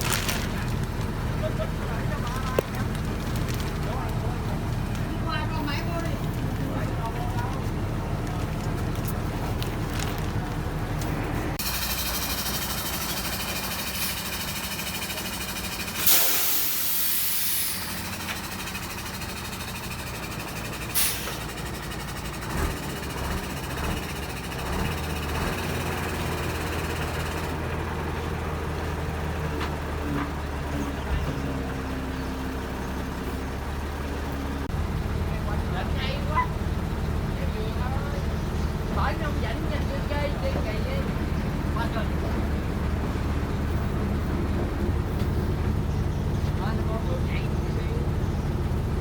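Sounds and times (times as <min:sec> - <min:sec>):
loud hiss: 0:11.6 - 0:18.6.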